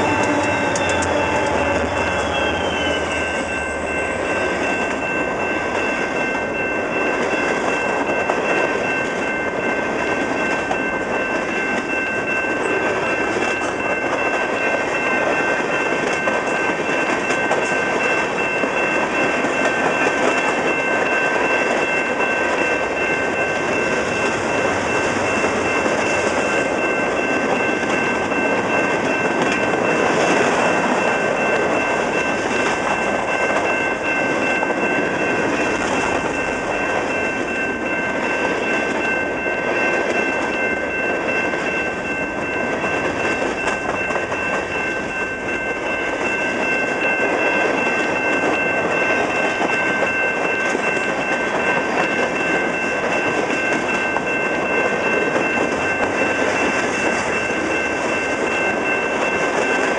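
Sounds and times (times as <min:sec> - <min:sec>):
steady high whine: 0:00.0 - 0:07.8
steel wheels rolling on rail: 0:00.0 - 0:59.9.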